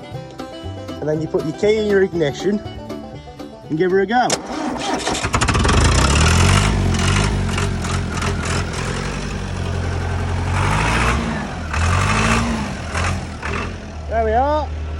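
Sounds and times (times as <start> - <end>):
diesel engine running: 4.3 - 14.9.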